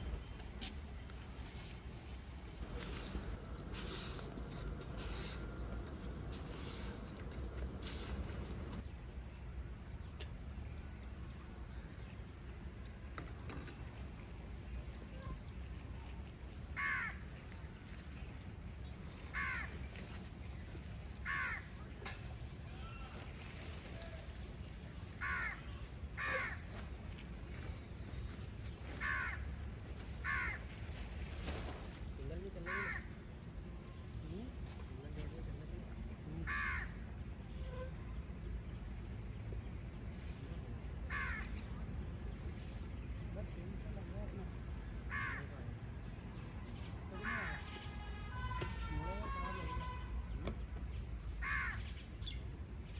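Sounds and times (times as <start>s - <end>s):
low steady rumble: 1.9s - 8.9s
crow cawing: 16.8s - 17.2s, 19.3s - 19.7s, 21.2s - 21.7s, 25.2s - 25.6s, 26.2s - 26.6s, 29.0s - 29.4s, 30.2s - 30.6s, 32.7s - 33.1s, 36.5s - 36.9s, 41.1s - 41.5s, 45.1s - 45.5s, 51.4s - 51.9s.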